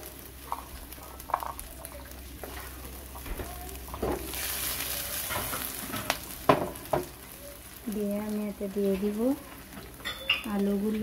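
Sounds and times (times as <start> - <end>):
frying pan scraping: 0.0 - 7.2
spices sizzling in hot oil: 0.0 - 11.0.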